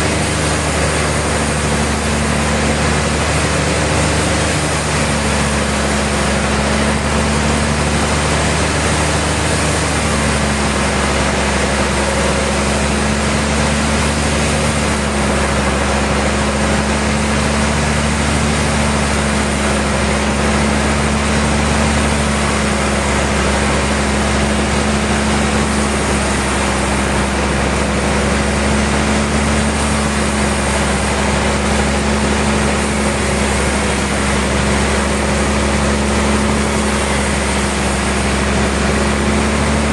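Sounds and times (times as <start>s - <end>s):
sawmill machinery hum: 0.0s - 39.9s.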